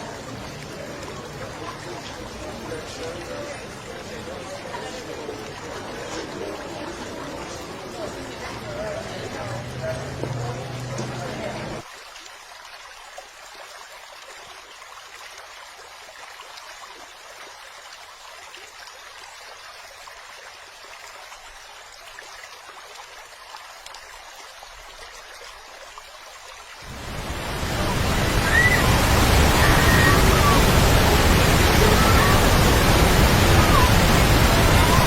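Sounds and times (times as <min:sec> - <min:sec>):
waterfall rushing: 0:26.8 - 0:35.0.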